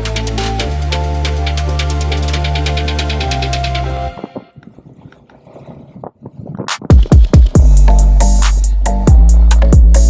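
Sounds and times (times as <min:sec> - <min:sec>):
electronic music with beat: 0:00.0 - 0:04.5, 0:06.7 - 0:10.0.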